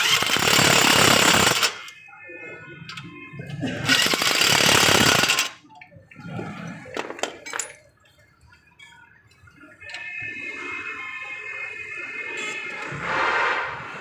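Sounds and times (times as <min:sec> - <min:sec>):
metal tools clinking: 0:06.9 - 0:08.1.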